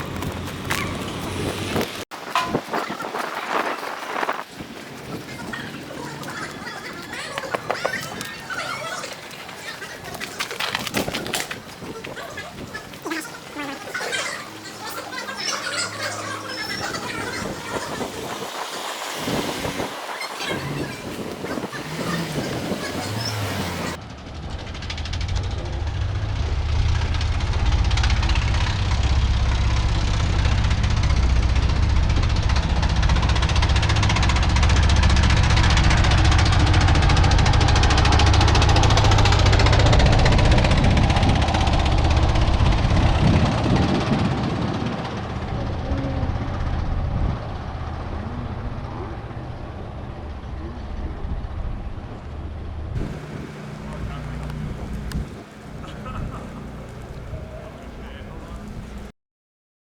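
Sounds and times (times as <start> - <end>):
vehicle rumbling: 0.0 - 59.1
engine running with rapid beat: 14.4 - 49.3, 53.0 - 59.1.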